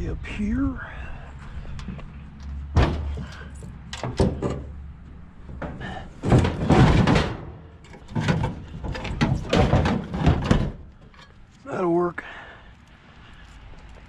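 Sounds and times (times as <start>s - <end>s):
metal scraping rattle: 1.8s - 11.6s.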